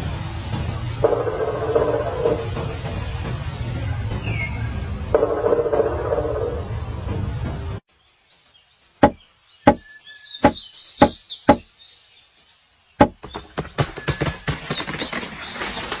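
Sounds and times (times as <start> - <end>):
woodpecker hammering on wood: 9.0 - 11.7, 13.0 - 14.4.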